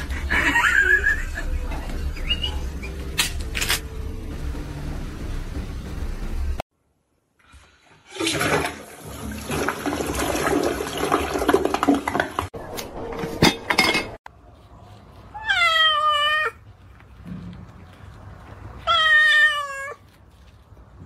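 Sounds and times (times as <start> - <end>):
toilet flushing: 7.5 - 12.6.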